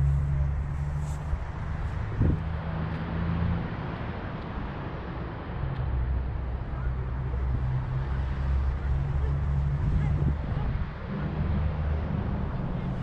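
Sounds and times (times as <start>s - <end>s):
vehicle engine running: 0.0s - 2.4s
outdoor background noise: 0.0s - 13.0s.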